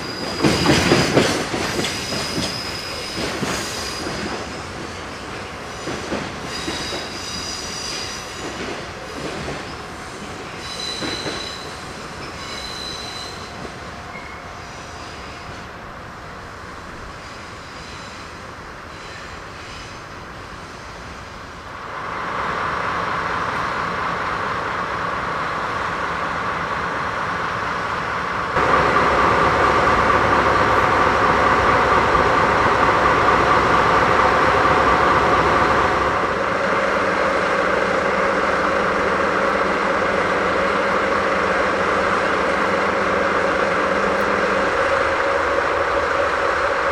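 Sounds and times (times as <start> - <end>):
high wheel squeal: 0.0 - 4.6, 5.7 - 9.8, 10.6 - 15.4
freight train wagons rolling on rails: 0.0 - 15.7.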